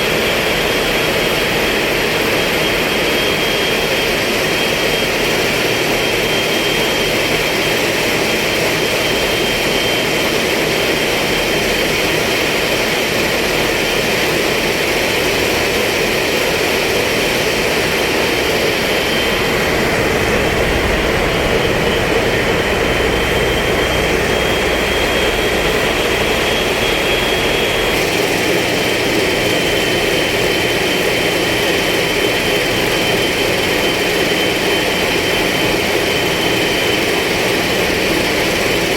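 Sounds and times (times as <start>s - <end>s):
high-pitched whine: 15.5s - 38.9s.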